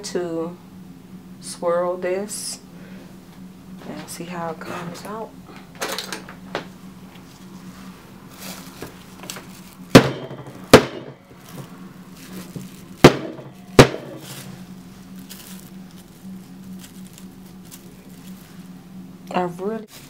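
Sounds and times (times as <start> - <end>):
hard object knocking on work surface: 10.0 - 11.2, 13.0 - 14.2.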